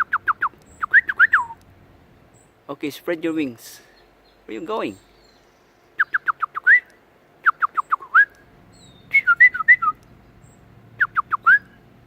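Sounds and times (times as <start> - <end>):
bird warbling: 0.0 - 1.6, 3.9 - 11.8
person whistling: 6.1 - 6.9, 7.5 - 8.4, 9.1 - 10.0, 11.0 - 11.8.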